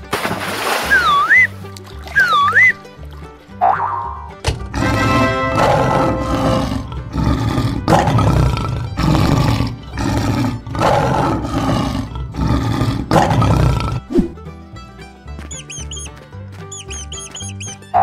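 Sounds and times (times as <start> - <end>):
lion roaring: 4.7 - 14.2.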